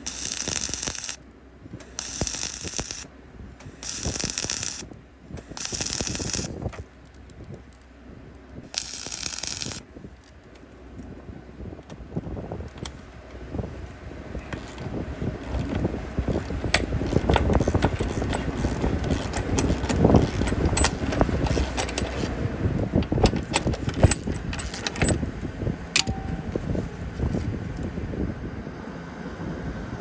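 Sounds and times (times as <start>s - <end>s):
low rumble: 1.6s - 29.7s
metal clanks and knocks: 14.4s - 22.3s, 23.0s - 25.2s, 26.0s - 26.8s.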